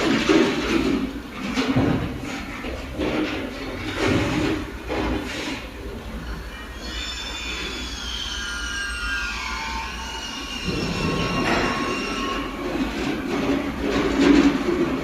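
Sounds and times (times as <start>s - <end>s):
uneven mechanical noise: 0.0s - 15.0s
welding machine high squeal: 6.5s - 12.6s.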